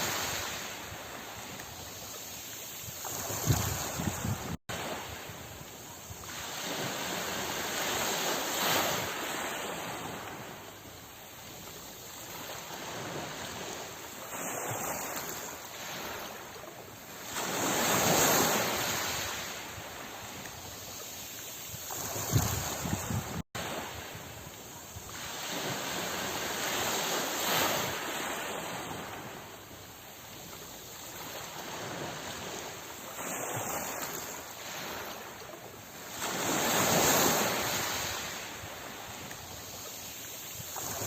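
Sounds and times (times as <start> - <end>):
wind rumble on microphone: 0.0 - 10.8, 21.6 - 29.6
sea waves washing ashore: 0.0 - 41.0.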